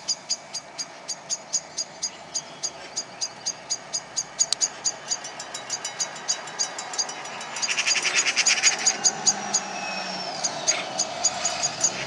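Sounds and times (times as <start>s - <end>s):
birds chirping sharply: 0.0s - 12.0s
thin falling whistle: 8.5s - 10.6s.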